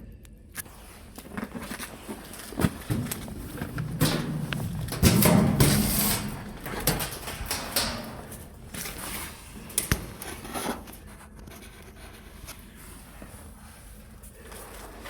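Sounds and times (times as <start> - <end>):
ice knocking and clattering: 1.0 - 10.5.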